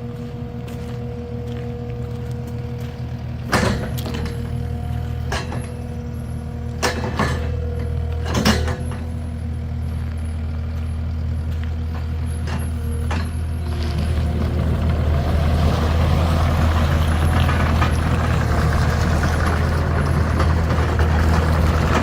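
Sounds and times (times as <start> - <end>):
large engine running: 0.0 - 22.0
sharp metallic clanks: 6.8 - 9.2.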